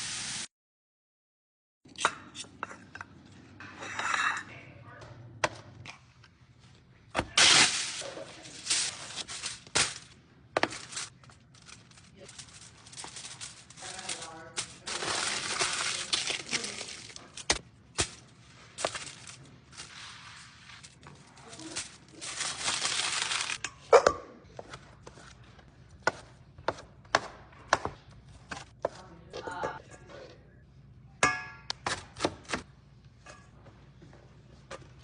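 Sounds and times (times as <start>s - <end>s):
packaging rustling: 7.4s - 18.2s, 18.8s - 23.6s
groceries knocking and clicking: 8.4s - 19.9s.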